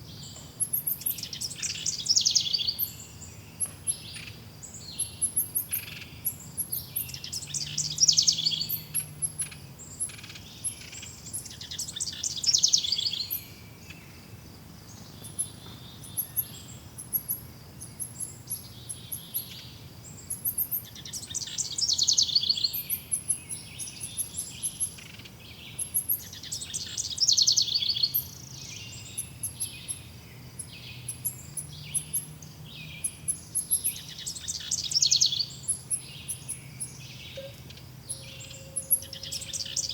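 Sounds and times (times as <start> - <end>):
thin high bird chirps: 33.0 - 39.9
bird trilling loudly: 37.4 - 39.9.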